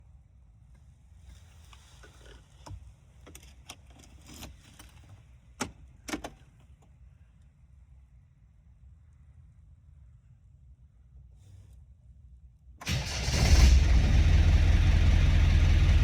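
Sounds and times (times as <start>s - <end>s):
low steady rumble: 0.0s - 16.0s
sharp clicks and knocks: 2.2s - 6.5s.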